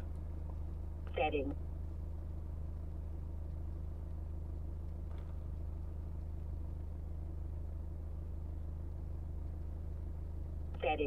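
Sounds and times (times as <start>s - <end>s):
car engine idling hum: 0.0s - 11.0s.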